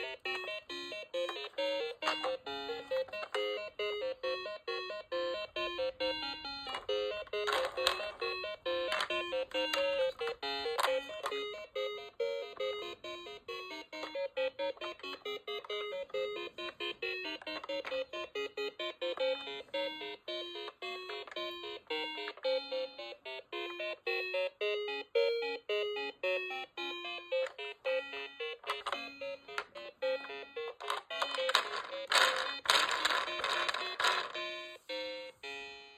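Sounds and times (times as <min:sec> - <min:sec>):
toy electronic beeping tune: 0:00.0 - 0:35.9
clicks and rattles: 0:30.6 - 0:34.5.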